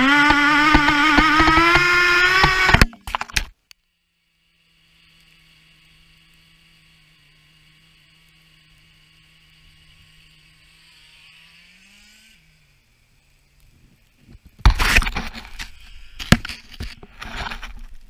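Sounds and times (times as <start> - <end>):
faint engine hum: 0.0 - 14.6.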